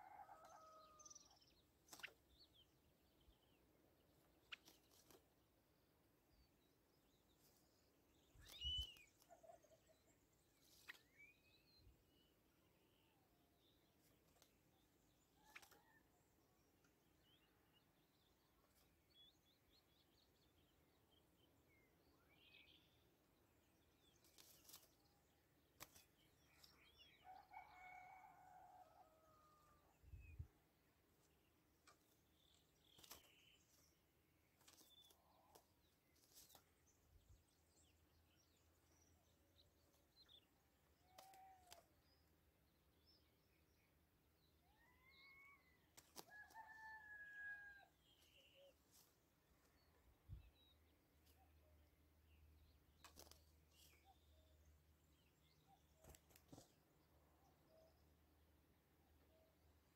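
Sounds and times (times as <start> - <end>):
faint bird chirps: 8.3 - 11.9.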